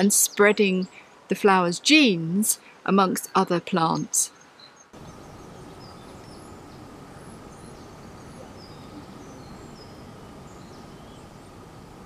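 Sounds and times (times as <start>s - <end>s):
steady background noise: 0.0s - 12.0s
birds chirping: 2.5s - 12.0s.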